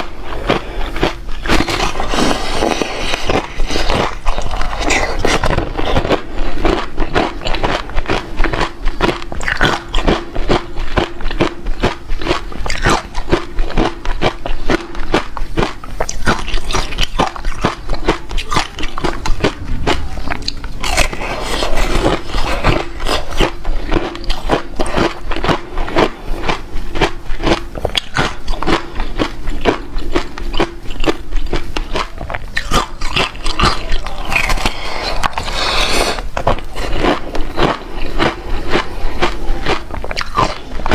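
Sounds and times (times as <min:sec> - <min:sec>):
ice being chewed: 0:00.0 - 0:40.9.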